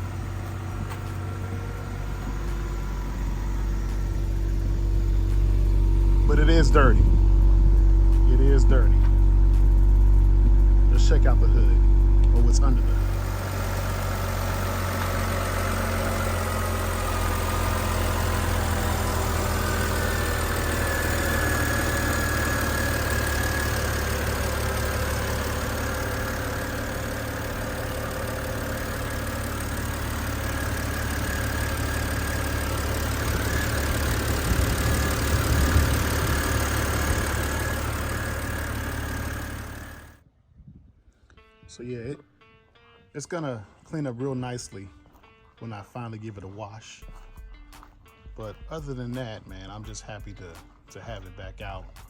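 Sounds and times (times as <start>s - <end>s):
car engine idling: 0.0s - 40.2s.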